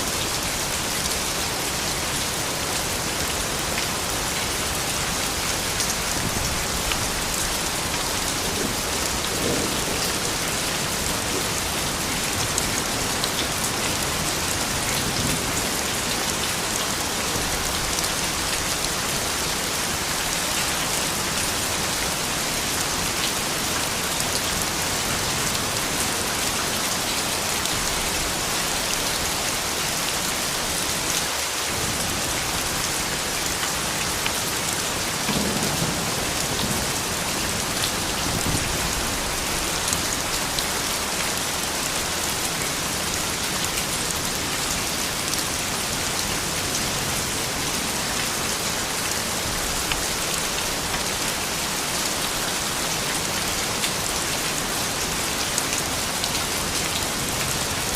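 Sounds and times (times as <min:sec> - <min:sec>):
steady rain hiss: 0:00.0 - 0:57.9
single raindrop hits: 0:35.2 - 0:36.0.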